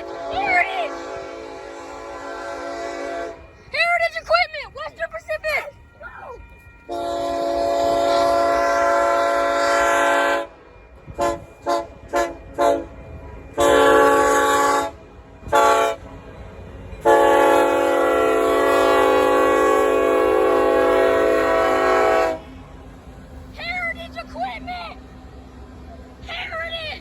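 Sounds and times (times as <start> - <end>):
locomotive air horn blasts: 0.0 - 3.6, 6.6 - 16.2, 17.0 - 22.5.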